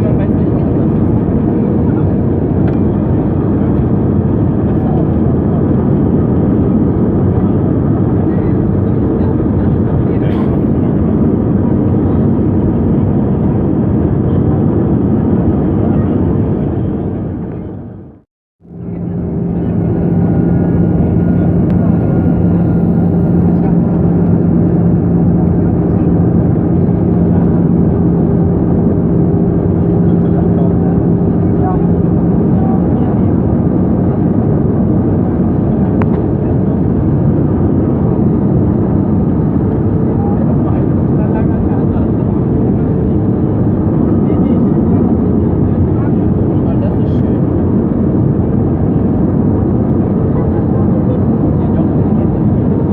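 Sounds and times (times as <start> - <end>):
airliner cabin rumble: 0.0 - 52.9.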